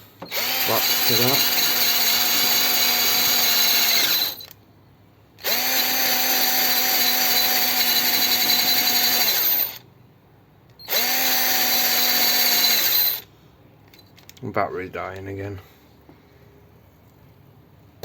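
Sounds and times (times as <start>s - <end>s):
cordless drill stripping rust: 0.2s - 4.6s, 5.4s - 9.8s, 10.8s - 13.3s.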